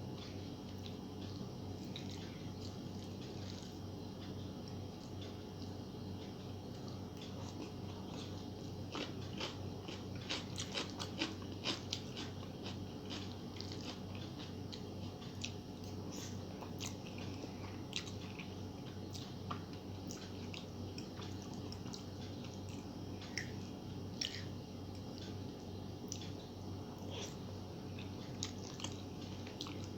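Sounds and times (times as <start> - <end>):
chewing with wet mouth clicks: 0.2 - 3.8, 6.7 - 25.4, 27.0 - 29.9.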